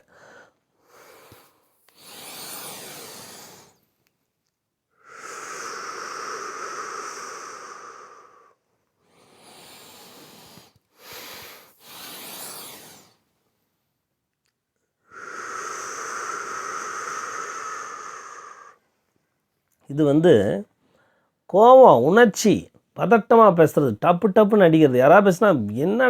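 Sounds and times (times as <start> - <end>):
man breathing in: 0.0 - 3.8, 5.0 - 13.2, 15.0 - 18.8, 20.8 - 21.4
man exhaling hiss through teeth: 0.0 - 3.8, 5.0 - 13.2, 15.0 - 18.8.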